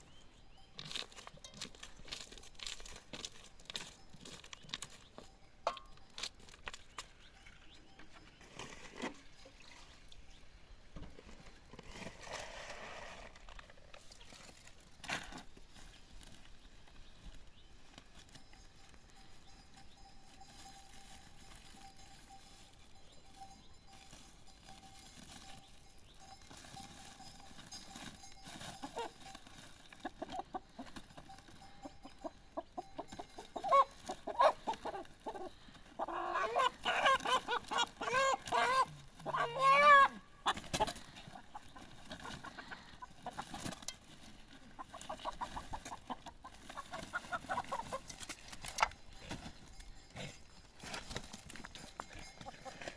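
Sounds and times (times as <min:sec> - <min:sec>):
chickens clucking: 0:22.6 - 0:52.9.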